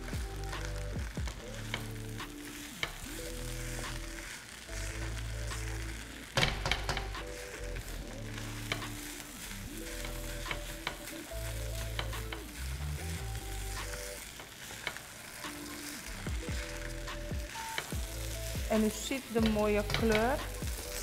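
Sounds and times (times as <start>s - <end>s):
background music with bass: 0.0s - 14.2s, 15.4s - 21.0s
fried rice sizzling in wok: 0.0s - 21.0s
spatula scraping pan: 0.4s - 21.0s.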